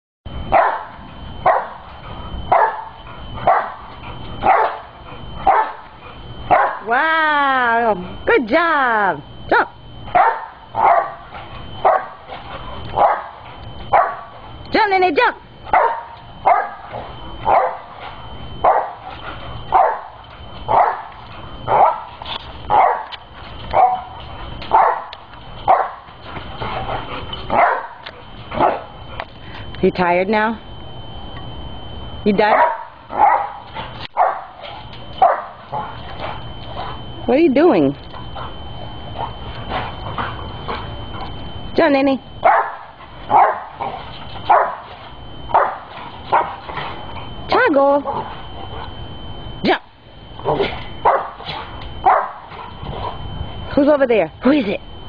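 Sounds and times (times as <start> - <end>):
dog barking: 0.5 - 1.8, 2.5 - 3.8, 4.4 - 5.8, 6.5 - 6.9, 10.1 - 12.3, 13.0 - 14.3, 15.7 - 16.9, 17.5 - 17.9, 18.6 - 19.0, 19.7 - 22.1, 22.7 - 26.1, 27.5 - 28.9, 32.5 - 33.6, 34.2 - 35.9, 42.4 - 44.8, 45.5 - 46.6, 50.6 - 52.5.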